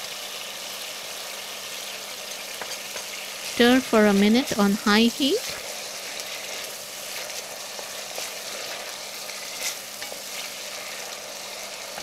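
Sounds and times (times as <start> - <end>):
paste sizzling in hot oil: 0.0 - 12.0
wooden spatula scraping: 5.4 - 12.0.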